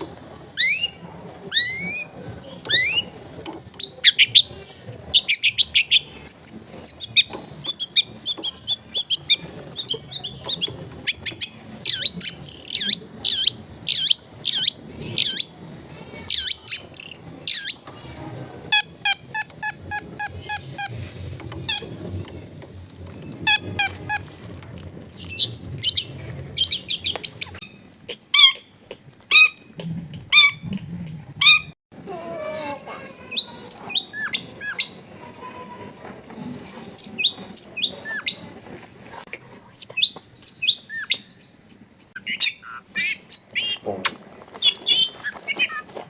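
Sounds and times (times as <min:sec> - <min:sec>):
bird singing varied song: 0:00.0 - 0:03.2, 0:03.8 - 0:15.6, 0:16.2 - 0:17.9, 0:32.4 - 0:45.9.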